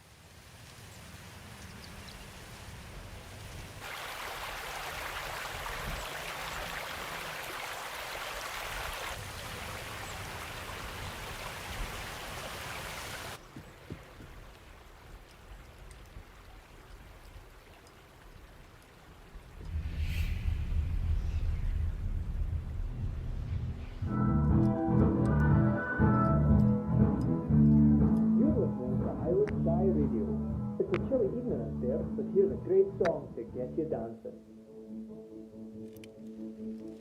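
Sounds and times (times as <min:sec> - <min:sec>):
steady rushing hiss: 0:19.2 - 0:24.3.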